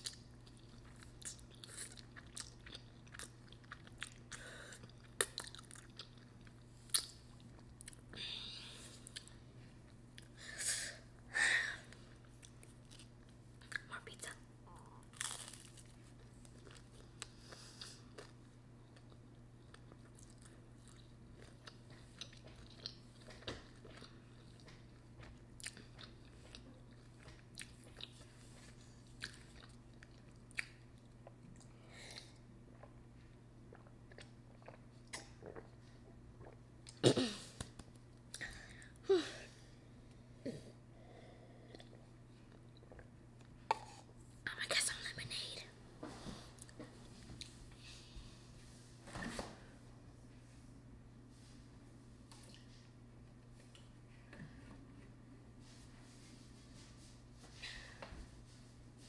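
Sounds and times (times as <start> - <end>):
chewing and crunching pizza: 0.0 - 8.1, 12.1 - 37.0
steady low hum: 0.0 - 59.0.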